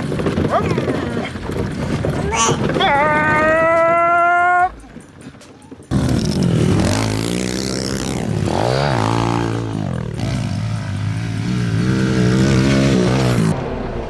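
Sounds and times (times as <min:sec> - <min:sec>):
small motorbike engine revving: 0:05.9 - 0:13.6.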